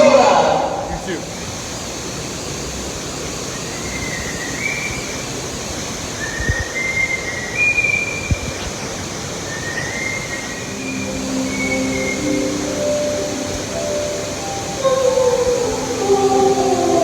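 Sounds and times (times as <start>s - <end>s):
short high whistle-like notes: 10.6s - 16.2s.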